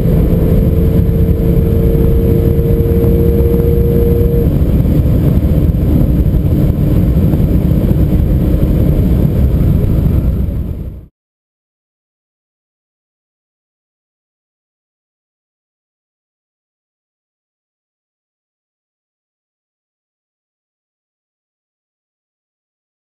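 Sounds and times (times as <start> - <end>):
car engine drone inside cabin: 0.0 - 11.1
road and wind noise: 0.0 - 11.1.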